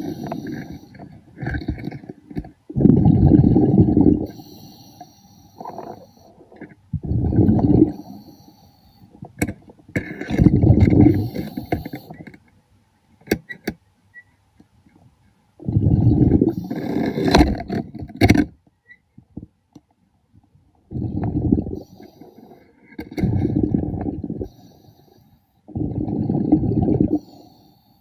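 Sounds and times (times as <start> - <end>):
exhaled bubbles underwater: 2.7 - 4.4, 5.6 - 8.3, 10.1 - 11.8, 15.6 - 17.7, 20.8 - 22.0, 23.1 - 24.6, 25.7 - 27.4.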